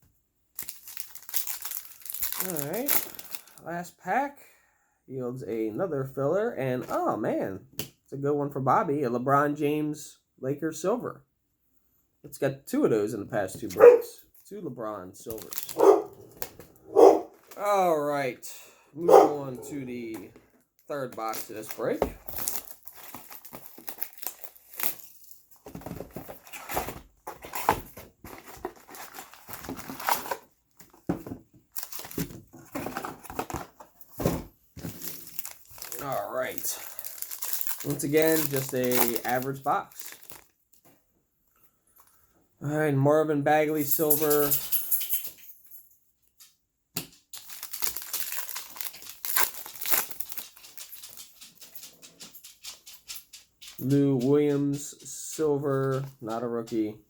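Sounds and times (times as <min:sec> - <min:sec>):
plastic wrapping crinkling and tearing: 0:00.5 - 0:03.6, 0:15.3 - 0:17.6, 0:20.7 - 0:31.1, 0:31.7 - 0:32.4, 0:34.8 - 0:40.8, 0:47.3 - 0:51.6.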